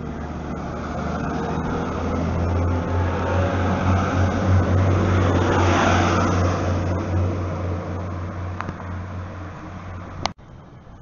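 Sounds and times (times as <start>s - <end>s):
diesel train passing: 0.0s - 11.0s.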